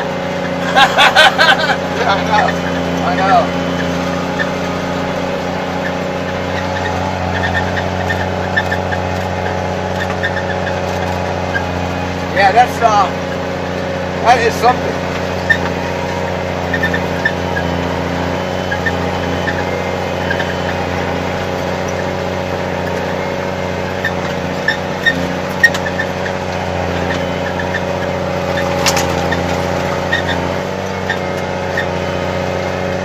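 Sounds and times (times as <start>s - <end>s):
grooming machine engine running: 0.0s - 33.0s.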